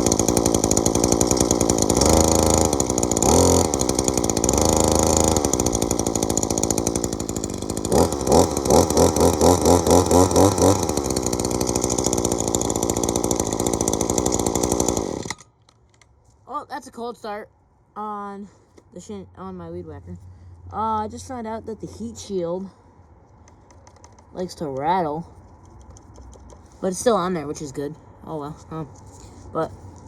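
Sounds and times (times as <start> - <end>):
string trimmer engine revving: 0.0 - 15.5.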